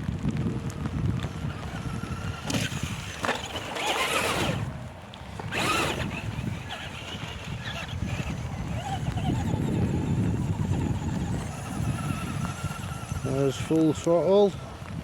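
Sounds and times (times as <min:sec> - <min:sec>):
wind rumble on microphone: 0:00.0 - 0:15.0
electric toy truck motor whining: 0:00.8 - 0:15.0.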